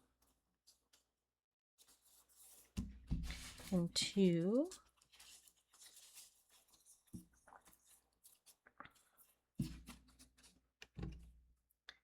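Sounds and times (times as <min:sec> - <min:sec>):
paper rustling: 0:01.8 - 0:10.7.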